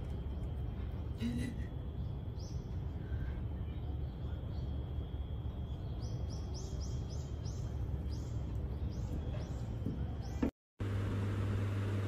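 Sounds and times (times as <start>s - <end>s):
low outdoor rumble: 0.0s - 12.0s
small bird chirping: 1.8s - 10.5s.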